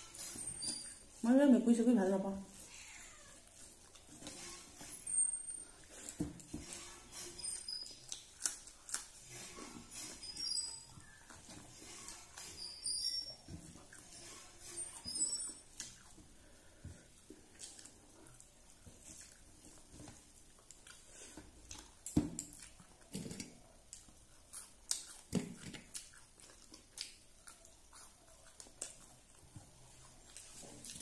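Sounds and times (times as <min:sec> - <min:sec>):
person chewing: 0:03.3 - 0:05.0, 0:07.6 - 0:10.1, 0:10.8 - 0:31.0.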